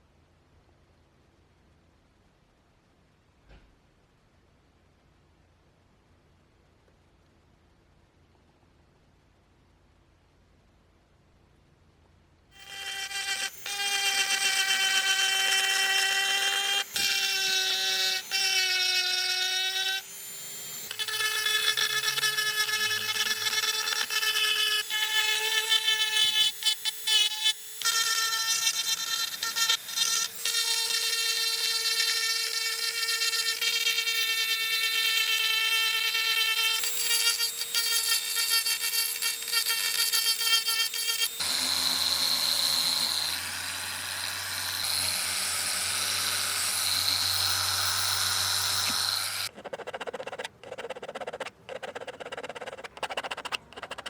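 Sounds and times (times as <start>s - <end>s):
high-speed power tool whining: 12.6s - 49.5s.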